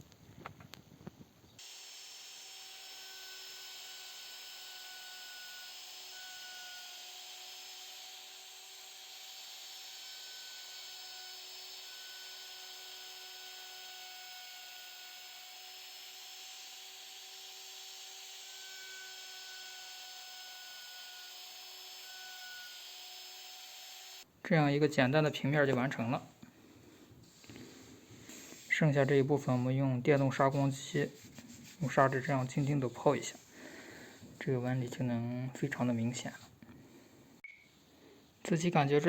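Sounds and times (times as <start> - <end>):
electric router milling wood: 1.6 - 24.2.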